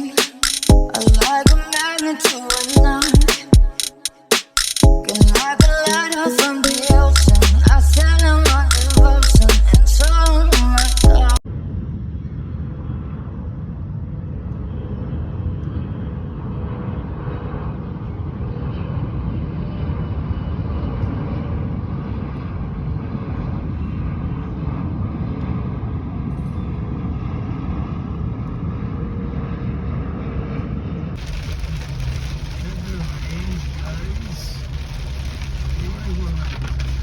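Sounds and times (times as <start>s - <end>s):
car engine and road noise: 31.2s - 37.0s.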